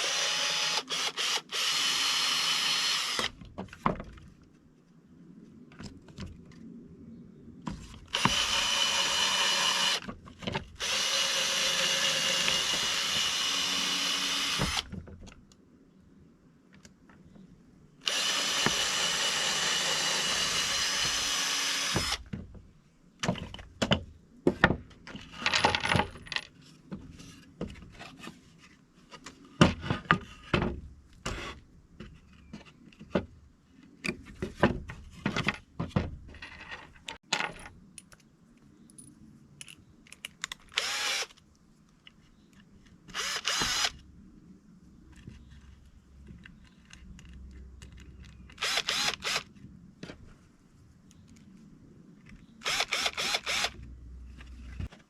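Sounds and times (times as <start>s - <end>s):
power drill running: 0.0s - 3.3s, 8.1s - 10.0s, 10.8s - 14.8s, 18.0s - 22.2s, 40.8s - 41.3s, 43.1s - 43.9s, 48.6s - 49.4s, 52.6s - 53.8s
tools and wood clicking and knocking: 18.1s - 28.4s, 29.1s - 43.9s, 46.2s - 49.4s.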